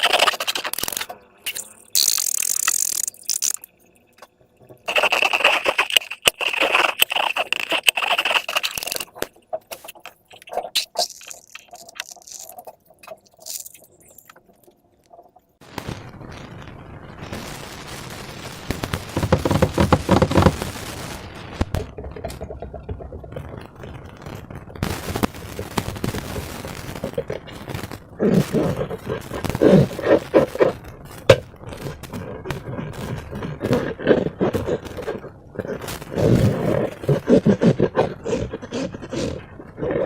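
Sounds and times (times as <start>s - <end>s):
slime squelching and popping: 0.0s - 3.8s, 4.8s - 14.7s, 21.7s - 40.0s.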